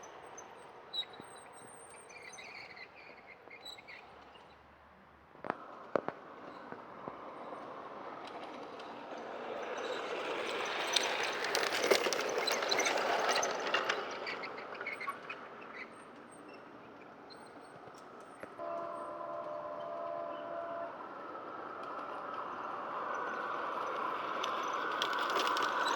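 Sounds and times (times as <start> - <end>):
model train wheels clicking on rails: 7.1 - 18.5, 21.2 - 25.9.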